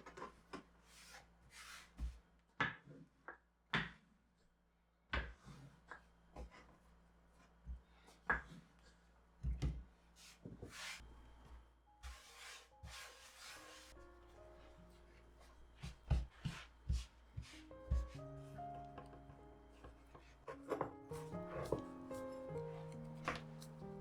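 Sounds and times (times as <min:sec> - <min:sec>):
objects knocking on wooden surfaces: 0:17.8 - 0:18.3, 0:18.9 - 0:24.0.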